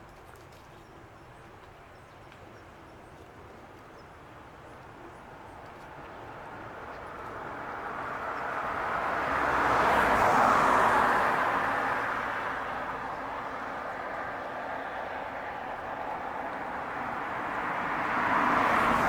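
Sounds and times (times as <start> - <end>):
car driving past: 17.4 - 19.0.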